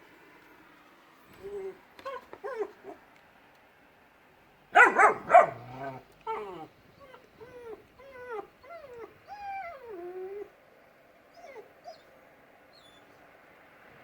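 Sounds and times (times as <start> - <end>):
dog whining: 1.4 - 3.0, 4.8 - 10.5.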